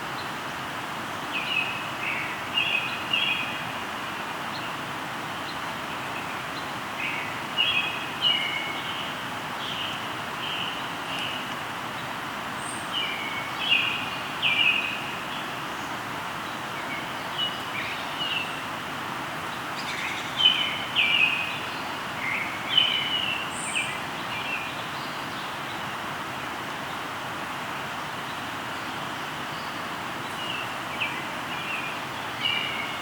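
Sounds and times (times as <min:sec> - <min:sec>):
river flowing: 0:00.0 - 0:33.0
birds chirping: 0:05.4 - 0:18.8, 0:19.4 - 0:26.0, 0:28.2 - 0:33.0.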